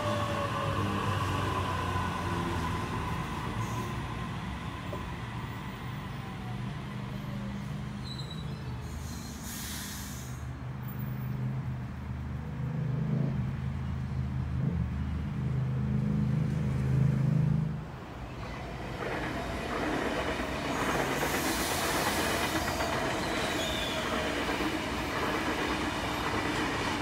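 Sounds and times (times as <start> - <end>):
train running hum: 0.0 - 7.4, 15.4 - 27.0
thin wheel squeal: 8.0 - 9.7, 20.8 - 24.3
air hiss: 8.8 - 10.6, 20.6 - 24.1.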